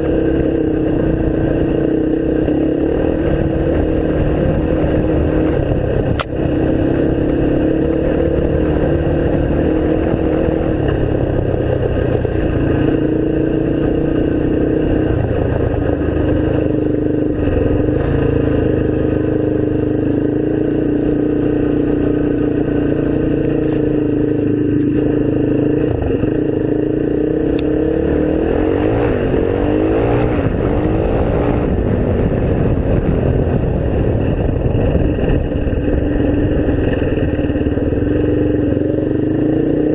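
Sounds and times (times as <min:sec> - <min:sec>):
off-road vehicle engine running: 0:00.0 - 0:39.9
sharp click: 0:06.1 - 0:06.4.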